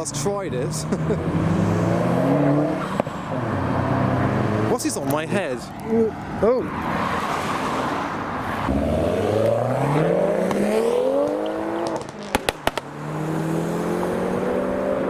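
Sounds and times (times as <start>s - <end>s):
car engine accelerating: 0.0s - 4.9s, 8.5s - 15.0s
exhaust pops: 10.4s - 13.2s.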